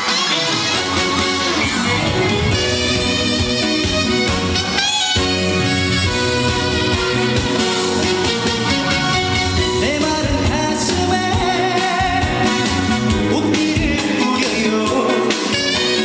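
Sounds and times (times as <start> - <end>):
band with electric guitar: 0.0 - 16.0
person singing: 1.5 - 4.6, 9.7 - 16.0.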